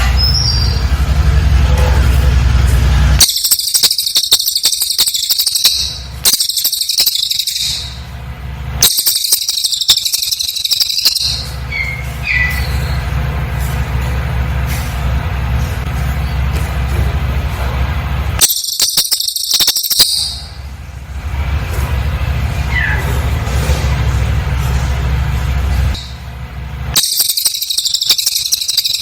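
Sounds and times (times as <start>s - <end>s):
bird chirp: 0.0s - 1.0s, 3.2s - 8.2s, 8.8s - 13.2s, 18.4s - 20.6s, 27.0s - 29.0s
steady low hum: 0.0s - 29.0s
bird trilling rapidly: 0.1s - 1.0s, 3.2s - 8.1s, 8.8s - 13.2s, 18.4s - 20.6s, 27.0s - 29.0s.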